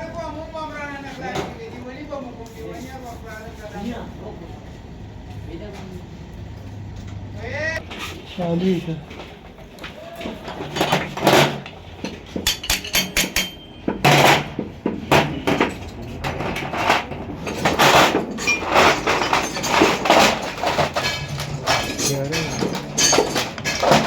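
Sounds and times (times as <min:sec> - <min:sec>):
hand tools knocking on metal: 0:10.5 - 0:24.0.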